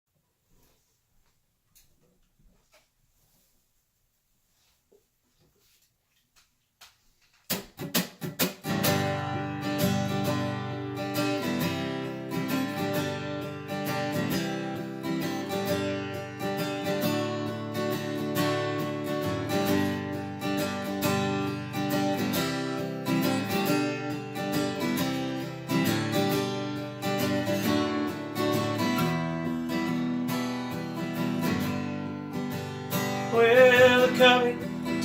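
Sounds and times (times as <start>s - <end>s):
acoustic guitar strumming: 7.5s - 35.0s.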